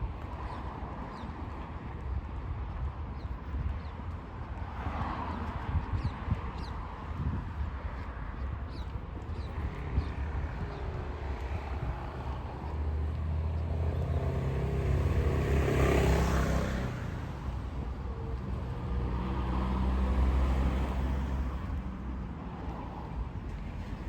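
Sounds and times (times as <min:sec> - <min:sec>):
car passing by: 0:11.5 - 0:23.1.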